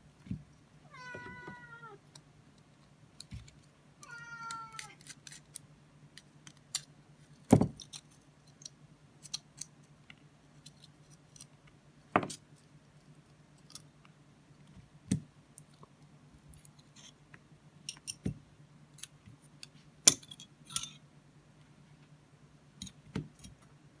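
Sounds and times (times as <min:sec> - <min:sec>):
small metal parts clicking: 0:04.5 - 0:05.6, 0:07.8 - 0:09.9.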